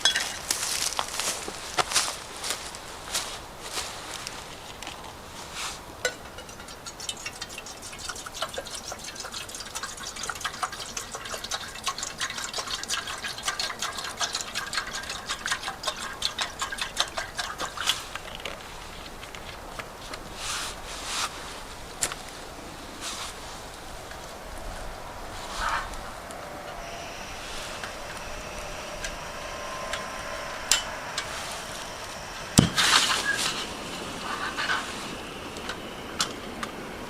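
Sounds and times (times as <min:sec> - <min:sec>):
water pouring into container: 0:06.8 - 0:18.3.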